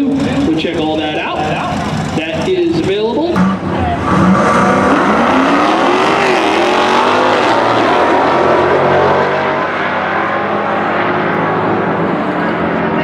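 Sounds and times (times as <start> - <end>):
racing car engine revving: 0.0 - 13.0.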